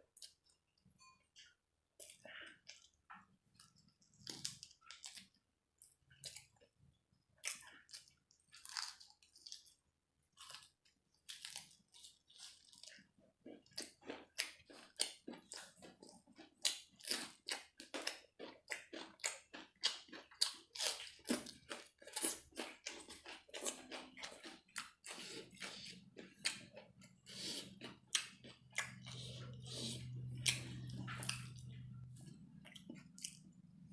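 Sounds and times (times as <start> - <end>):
person chewing food: 0.0 - 33.9.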